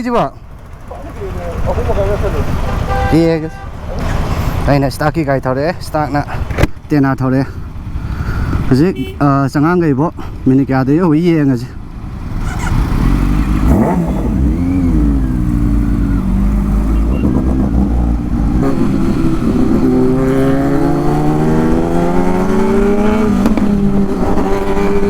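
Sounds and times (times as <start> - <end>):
motorcycle engine revving: 0.5 - 5.6, 11.7 - 25.0.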